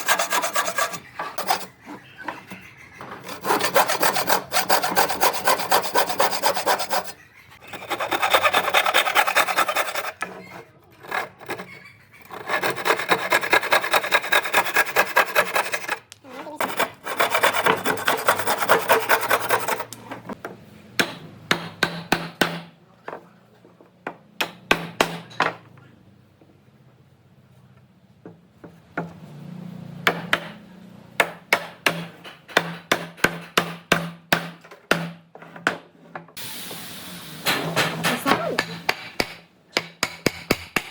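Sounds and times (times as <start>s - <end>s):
hand tool rubbing on wood: 0.0s - 16.0s.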